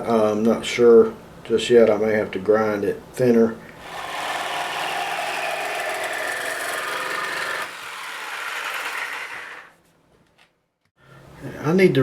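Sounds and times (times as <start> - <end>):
power tool cutting steel: 3.8 - 9.8.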